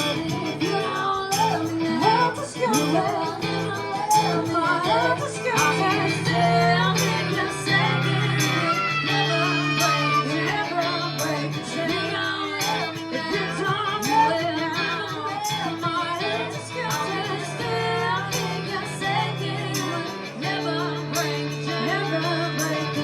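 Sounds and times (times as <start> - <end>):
person singing: 0.0 - 23.0
live rock band playing: 5.0 - 23.0.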